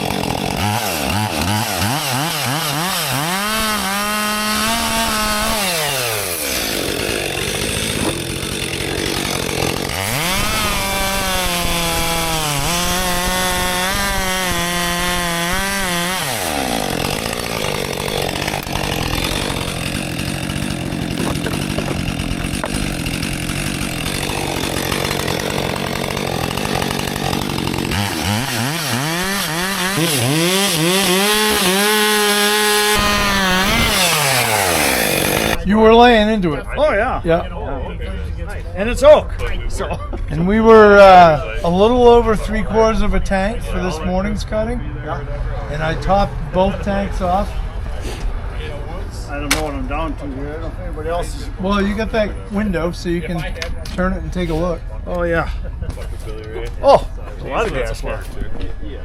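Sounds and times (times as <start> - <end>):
chainsaw cutting wood: 0.0 - 35.6.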